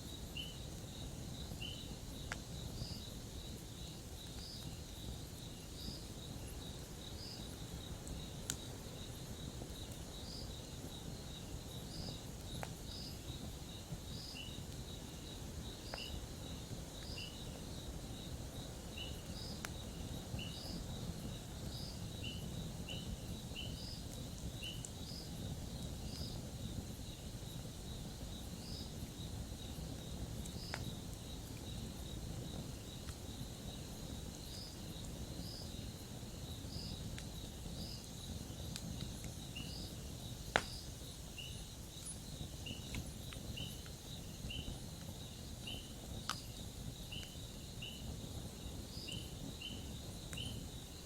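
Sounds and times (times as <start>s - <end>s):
campfire burning: 0.0s - 51.0s
fire popping: 0.0s - 51.0s
insects chirping: 0.0s - 51.0s.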